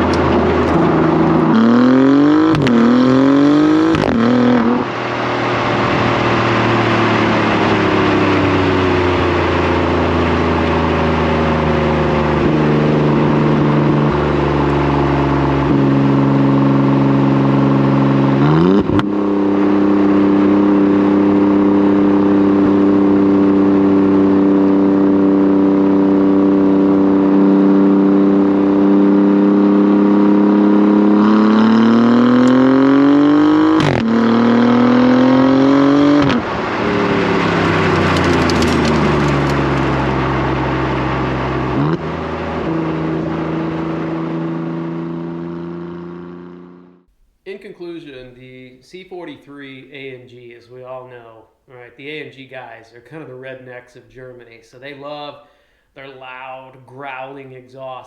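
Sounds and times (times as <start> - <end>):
exhaust crack at gear change: 0.0 - 27.3, 29.7 - 47.5
car engine revving: 0.0 - 47.2.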